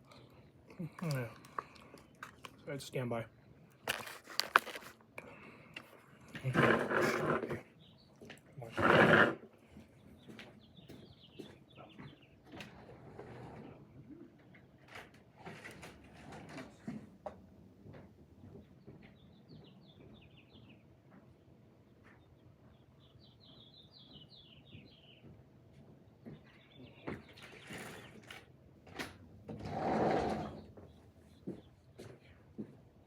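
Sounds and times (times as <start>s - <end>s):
handling clicks and rustles: 0.8s - 2.8s, 3.7s - 5.2s
songbird chirping: 9.8s - 12.6s, 18.7s - 28.3s.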